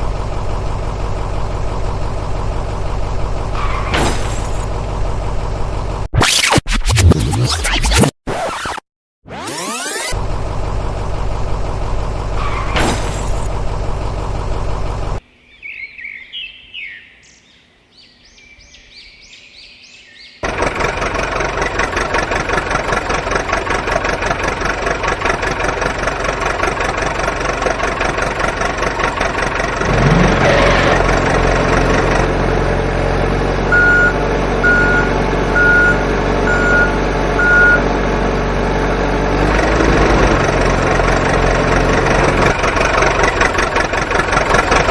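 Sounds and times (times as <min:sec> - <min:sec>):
heavy truck engine running: 0:00.0 - 0:06.1, 0:09.8 - 0:15.2, 0:20.4 - 0:44.9
reversing beeps: 0:33.7 - 0:37.8.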